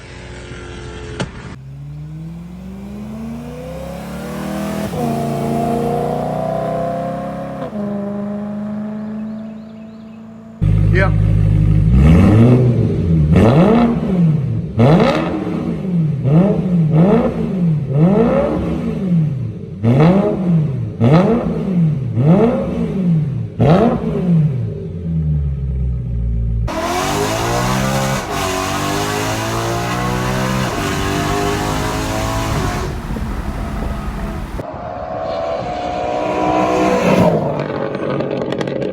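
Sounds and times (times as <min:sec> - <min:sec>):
car accelerating: 0:00.0 - 0:38.9
car engine free-revving: 0:00.0 - 0:38.9
wind and road noise: 0:00.0 - 0:38.9.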